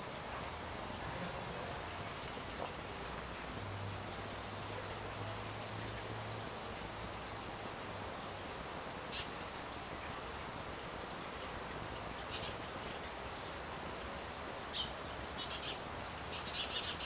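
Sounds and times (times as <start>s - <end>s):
steady background hiss: 0.0s - 17.0s
small bird chirping: 12.3s - 12.6s, 14.7s - 17.0s.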